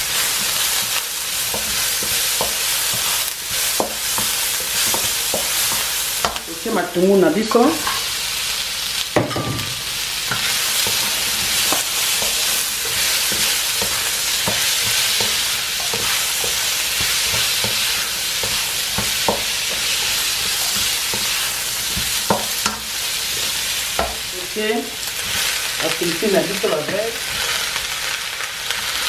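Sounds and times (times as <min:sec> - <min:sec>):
onions sizzling in oil: 0:00.0 - 0:29.0
spatula knocking against pan: 0:09.2 - 0:11.1.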